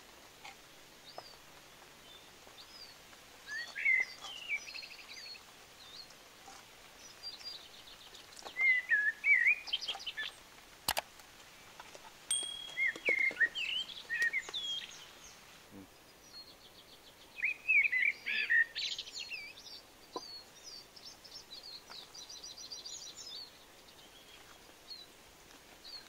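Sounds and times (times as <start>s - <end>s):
birds whistling chirps: 2.0s - 6.1s, 7.0s - 10.4s, 12.3s - 25.1s.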